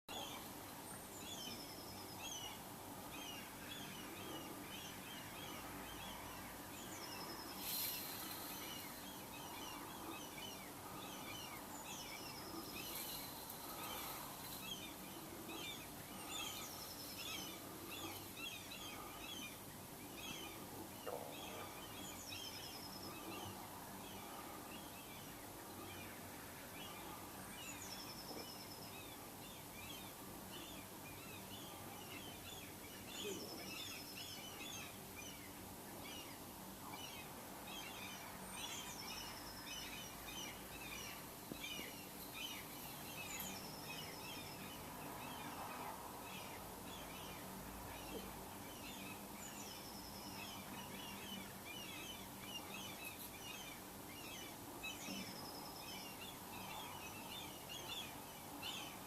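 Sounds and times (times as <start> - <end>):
birds chattering calls: 0.1 - 59.0.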